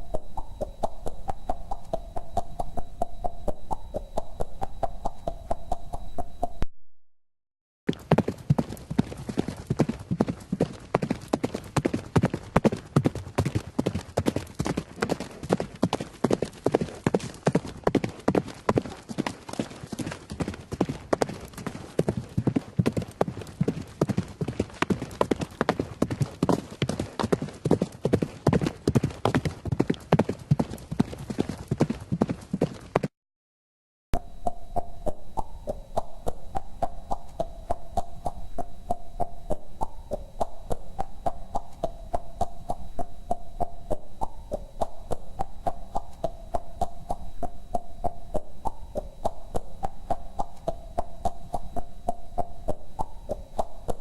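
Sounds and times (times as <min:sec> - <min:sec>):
horse hooves clip-clopping: 0:00.0 - 0:06.6, 0:07.9 - 0:33.1, 0:34.2 - 0:54.0
faint steady hum: 0:00.0 - 0:06.7, 0:34.2 - 0:54.0.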